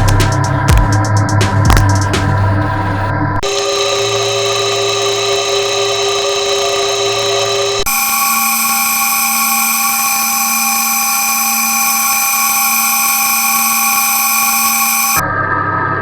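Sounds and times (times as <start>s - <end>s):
power tool whining: 3.4s - 15.2s.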